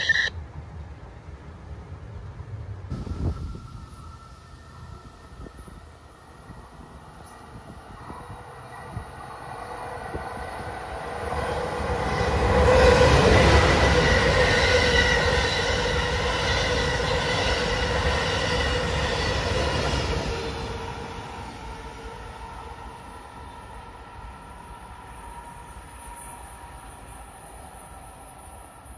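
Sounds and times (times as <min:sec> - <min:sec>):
high-speed train passing: 0:00.0 - 0:28.9.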